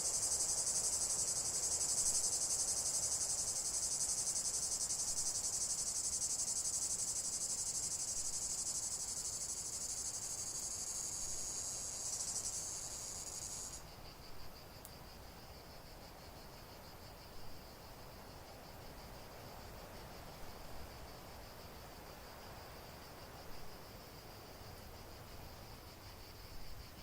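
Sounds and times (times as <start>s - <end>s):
high-pitched insect chorus: 0.0s - 27.0s.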